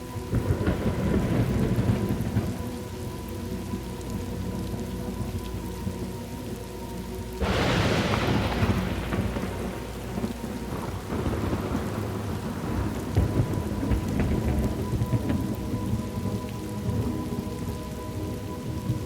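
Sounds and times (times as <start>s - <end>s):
steady rain falling: 0.0s - 19.0s
low rolling thunder: 0.1s - 6.2s, 7.3s - 19.0s
thunder crash: 7.4s - 16.0s.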